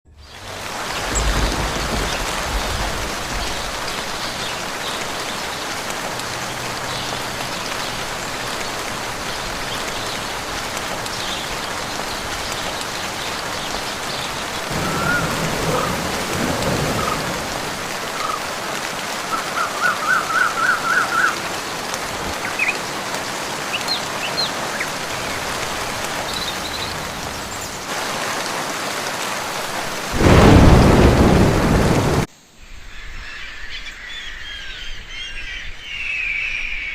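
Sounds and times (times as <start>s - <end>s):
steady rain in a forest: 0.1s - 36.9s
thunder: 0.4s - 4.1s, 14.7s - 17.9s, 30.1s - 32.3s.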